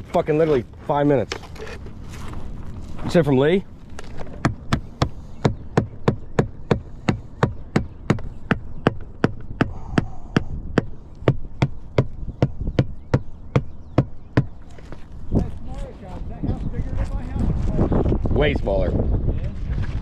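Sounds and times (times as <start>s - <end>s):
sharp knocks: 4.2s - 14.6s.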